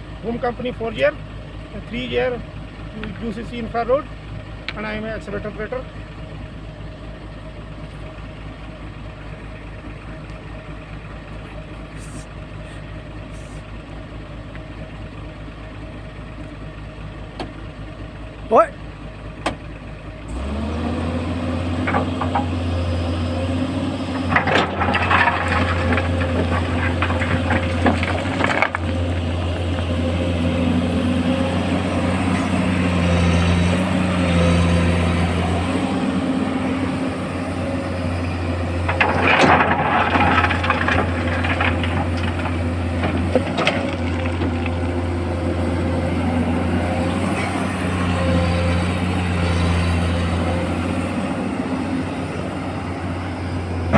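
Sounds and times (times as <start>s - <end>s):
excavator diesel engine: 0.0s - 53.9s
rattling clatter: 21.0s - 53.9s.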